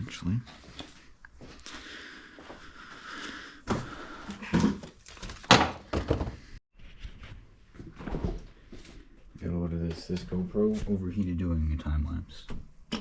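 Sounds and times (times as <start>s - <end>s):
objects thunking and knocking: 3.7s - 11.1s.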